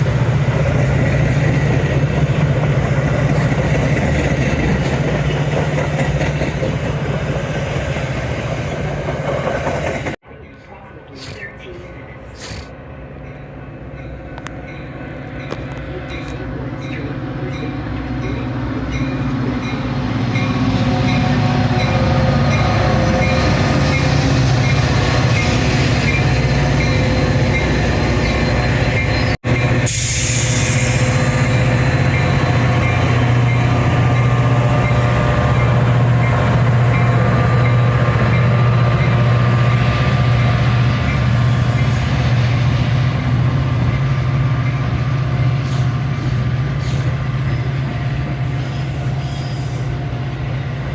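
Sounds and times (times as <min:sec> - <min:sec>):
diesel locomotive engine drone: 0:00.0 - 0:50.9
burst of hiss: 0:29.9 - 0:31.3.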